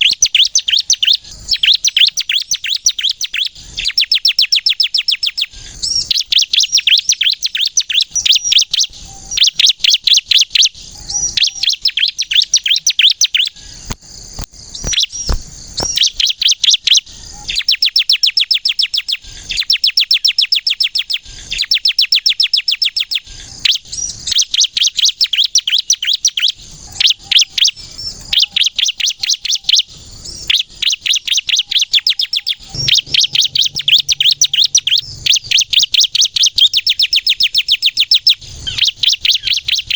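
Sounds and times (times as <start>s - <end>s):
bird singing sharp high notes: 32.0s - 39.9s.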